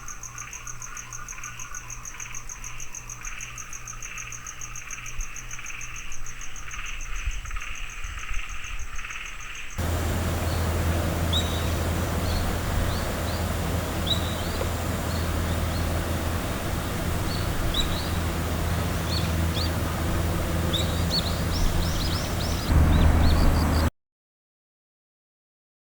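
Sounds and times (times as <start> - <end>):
insects trilling: 9.8 - 23.9
small bird chirping: 9.8 - 23.9
steady low hum: 9.8 - 23.9.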